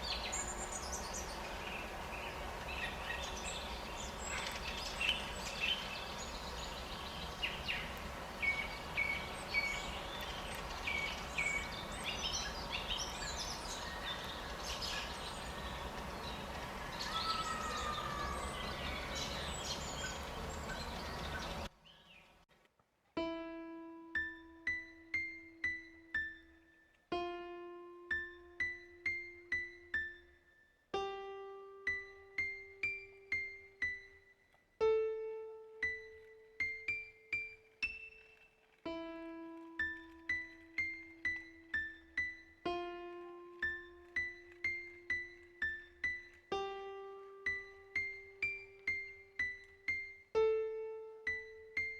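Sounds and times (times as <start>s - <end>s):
slow solo piano: 0.0s - 21.7s, 23.2s - 51.9s
bird chirps and calls: 0.0s - 22.4s
steady outdoor noise: 0.0s - 22.4s.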